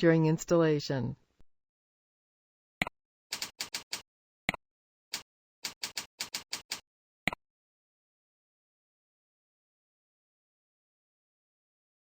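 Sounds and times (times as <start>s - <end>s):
keyboard typing: 3.3s - 4.0s, 5.1s - 6.8s.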